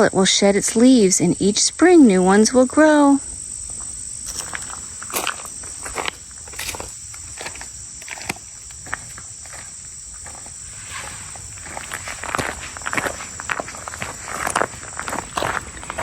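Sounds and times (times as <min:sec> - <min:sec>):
insects droning: 0:00.0 - 0:16.0
footsteps on a trail: 0:03.4 - 0:16.0.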